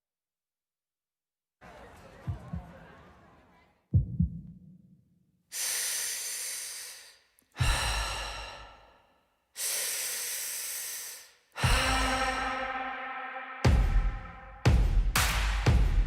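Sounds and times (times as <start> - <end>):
amplified heavy breathing: 5.6 - 14.6
low bass thump: 13.6 - 16.0.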